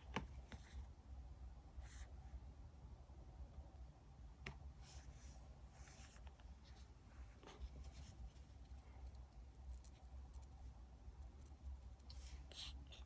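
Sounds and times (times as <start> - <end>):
low room hum: 0.0 - 13.0
paper rustling and scratching: 4.8 - 8.8.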